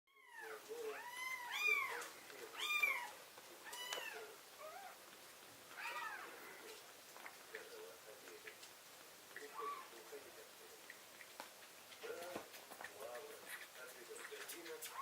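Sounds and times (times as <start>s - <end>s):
kitten mewing: 0.2s - 5.0s.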